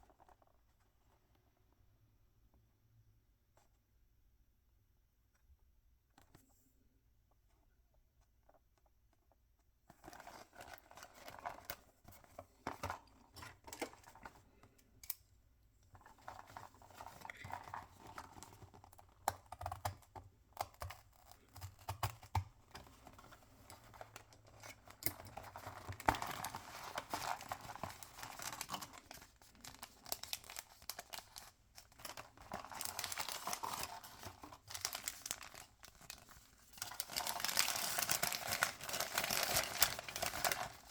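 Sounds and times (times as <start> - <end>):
packaging tearing and crinkling: 24.4 - 40.9.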